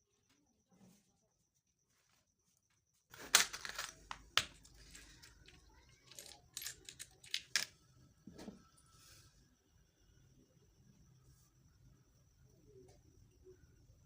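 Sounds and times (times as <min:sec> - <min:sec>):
packaging clicks and knocks: 0:03.1 - 0:07.7
packaging rustling: 0:03.1 - 0:07.7.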